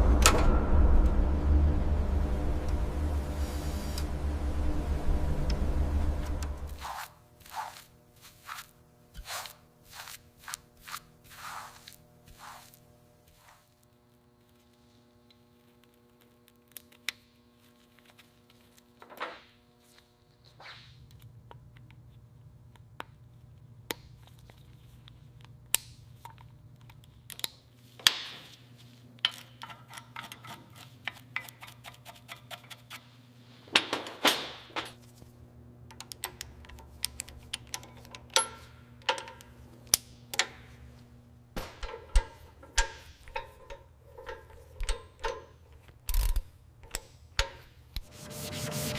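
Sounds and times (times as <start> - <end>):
steady low hum: 0.0 - 16.6, 34.6 - 48.9.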